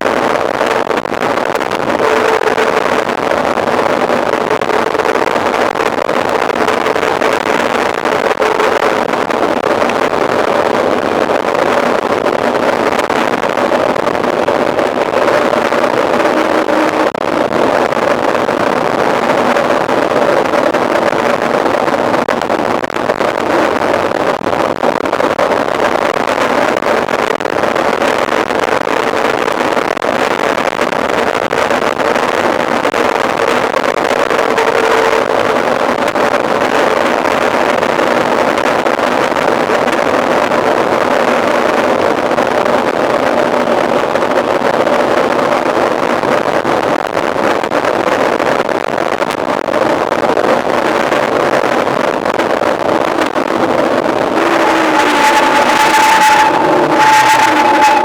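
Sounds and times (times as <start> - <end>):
wind on microphone: 0.0 - 58.0
bike tyre noise: 0.1 - 22.4, 50.8 - 58.0.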